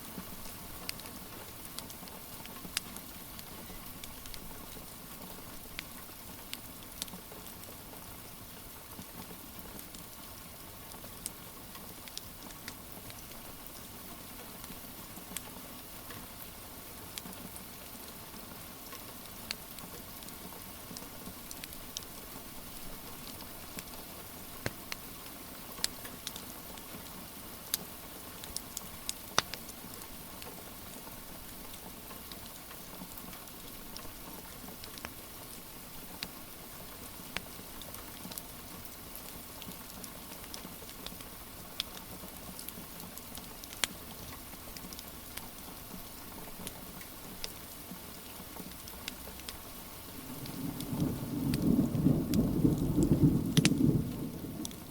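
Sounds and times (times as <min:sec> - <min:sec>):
steady rain hiss: 0:00.0 - 0:54.9
wood fire crackling and popping: 0:00.2 - 0:07.6, 0:09.8 - 0:10.0, 0:11.0 - 0:13.8, 0:18.9 - 0:30.5, 0:31.4 - 0:36.4, 0:37.0 - 0:47.6, 0:48.7 - 0:54.9.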